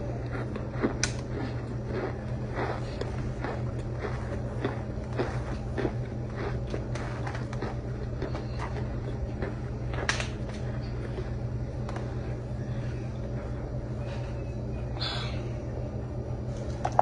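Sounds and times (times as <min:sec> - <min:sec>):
crunchy chewing: 0:00.0 - 0:12.9
steady low hum: 0:00.0 - 0:17.0.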